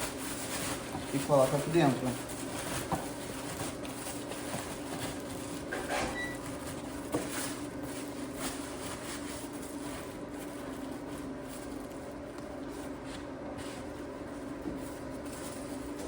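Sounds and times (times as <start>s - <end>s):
plastic tarp rustling: 0.0s - 12.1s.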